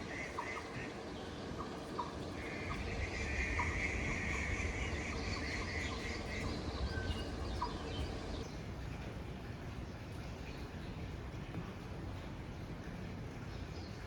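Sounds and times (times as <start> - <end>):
birds chirping: 0.1 - 8.6
low steady rumble: 1.0 - 14.0.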